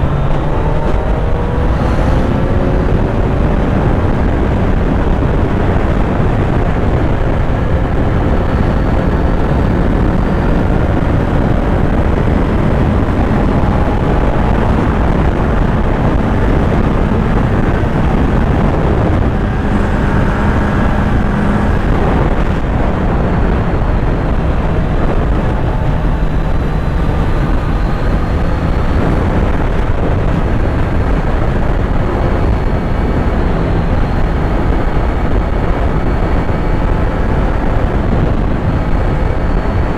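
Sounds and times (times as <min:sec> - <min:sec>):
low rush of wind: 0:00.0 - 0:39.9
motorcycle engine running: 0:00.0 - 0:39.9.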